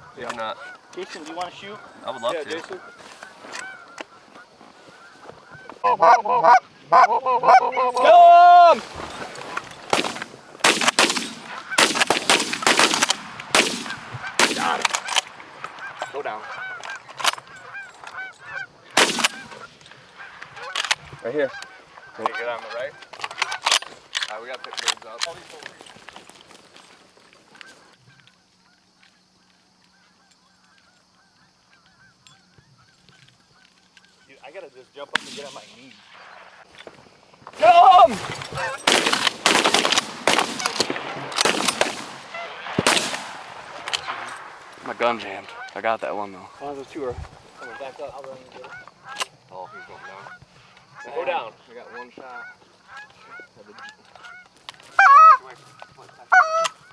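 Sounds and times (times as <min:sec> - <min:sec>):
geese honking and clucking: 0:00.0 - 0:56.9
person shouting: 0:07.1 - 0:08.8, 0:37.6 - 0:38.2
shotgun blasts: 0:09.4 - 0:16.0, 0:19.0 - 0:19.8, 0:35.2 - 0:36.7, 0:38.1 - 0:45.5.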